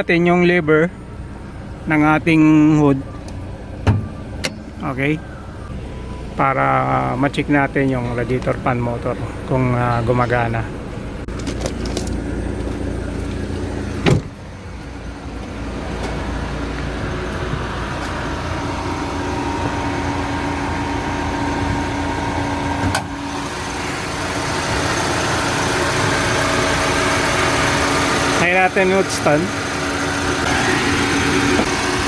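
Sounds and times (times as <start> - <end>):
car engine idling: 0.0 - 32.0
loud thump: 3.8 - 4.7, 14.0 - 14.4.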